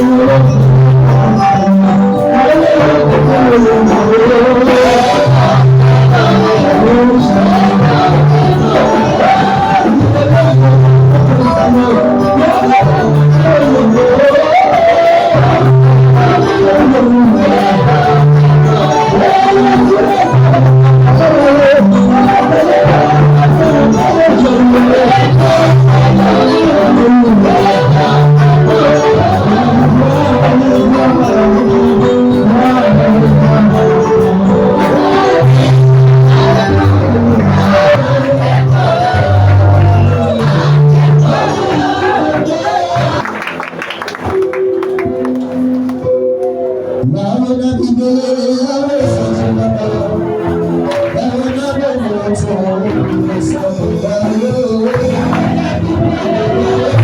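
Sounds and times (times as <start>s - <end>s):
held bass notes: 0.0s - 43.6s
percussion beat: 0.0s - 46.1s, 49.2s - 57.0s
church worship music with singing: 0.0s - 57.0s.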